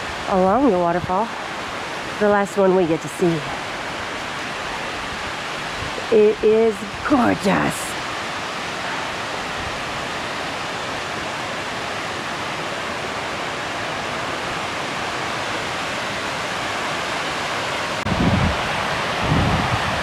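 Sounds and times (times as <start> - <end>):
waterfall rushing over rock: 0.0 - 20.0
wind buffeting microphone: 17.9 - 20.0.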